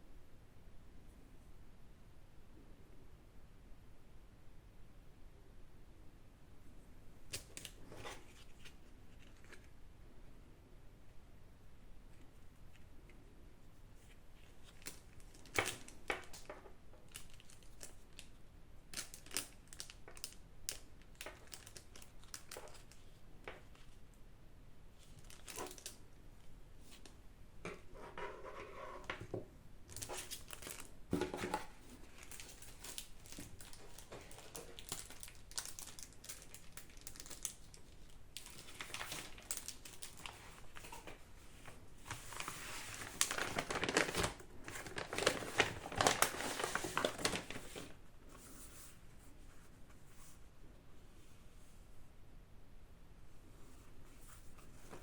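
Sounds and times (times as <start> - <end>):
packaging crinkling: 14.5 - 23.0, 25.1 - 26.0, 29.9 - 31.0, 32.0 - 41.2, 42.0 - 48.0.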